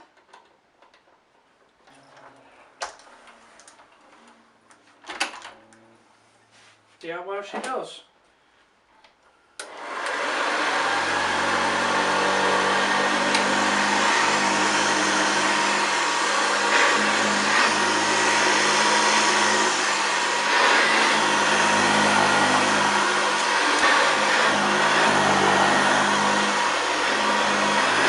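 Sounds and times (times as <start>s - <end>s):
vacuum cleaner motor running: 9.6s - 28.0s.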